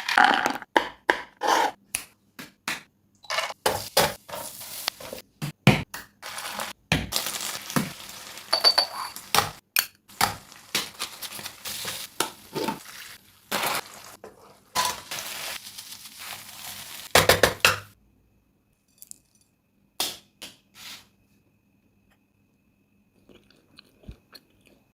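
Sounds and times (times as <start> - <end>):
utensil clattering and scraping in pan: 3.3 - 5.2, 10.2 - 15.6
food sizzling: 3.5 - 5.2, 6.2 - 17.9.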